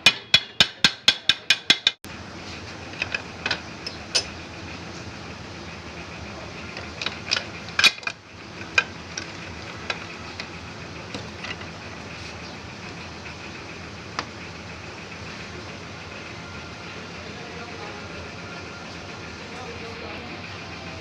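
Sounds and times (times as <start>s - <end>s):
steady background hum: 0.0s - 21.0s
metal tools clinking: 2.8s - 4.4s.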